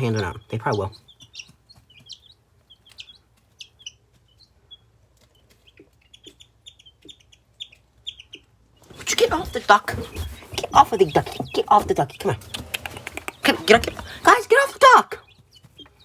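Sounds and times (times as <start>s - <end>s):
baby chicks and ducklings peeping: 0.0s - 16.0s.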